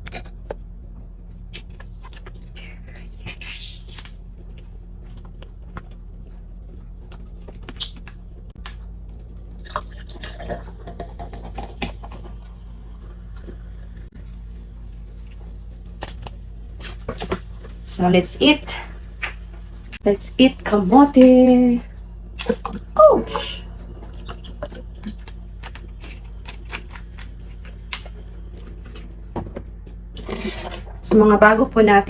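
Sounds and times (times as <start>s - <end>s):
steady low hum: 0.0s - 32.0s
short hiss: 3.3s - 4.2s.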